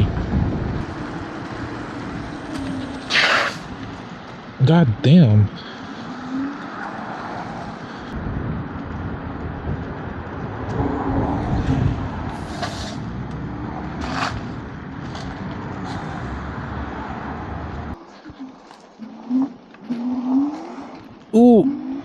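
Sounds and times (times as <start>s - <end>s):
wind rumbling on microphone: 0.0s - 4.3s, 7.2s - 18.4s
tyre and traffic noise: 0.0s - 22.0s.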